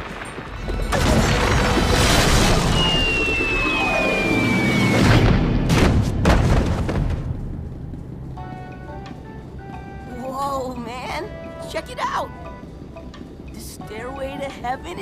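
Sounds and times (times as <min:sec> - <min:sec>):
rumbling cartoon crash: 0:00.7 - 0:07.6
falling whistle: 0:02.5 - 0:05.4.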